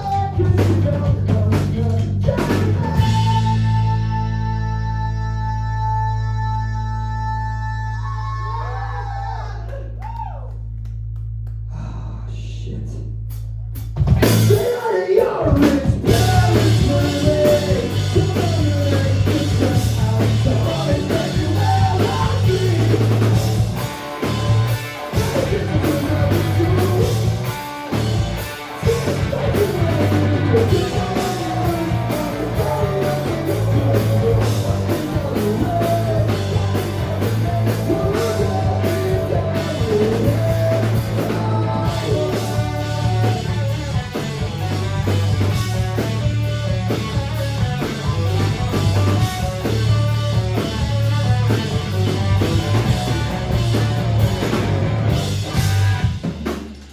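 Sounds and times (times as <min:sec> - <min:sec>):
drum kit: 0:00.0 - 0:04.6, 0:13.3 - 0:56.9
bass guitar: 0:00.0 - 0:56.9
electric guitar: 0:16.0 - 0:56.3.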